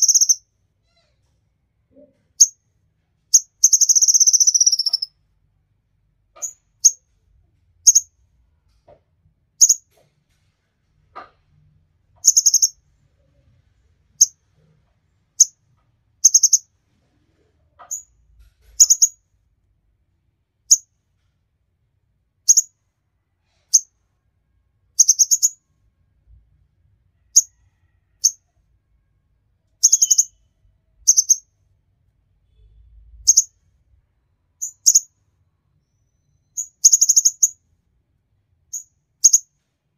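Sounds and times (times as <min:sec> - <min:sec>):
songbird chirping: 0:00.0 - 0:00.5, 0:03.3 - 0:05.2, 0:07.8 - 0:08.1, 0:12.2 - 0:12.9, 0:16.2 - 0:16.7, 0:18.8 - 0:19.2, 0:25.0 - 0:25.7, 0:29.8 - 0:31.6, 0:33.1 - 0:33.6, 0:34.6 - 0:37.6.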